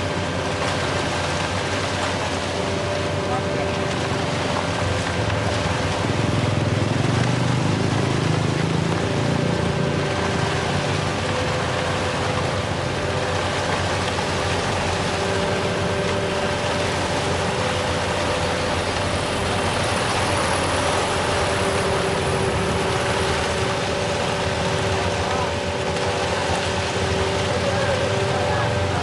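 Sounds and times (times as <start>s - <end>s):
heavy diesel engine running: 0.0s - 29.0s
hum of held tones: 0.0s - 29.0s.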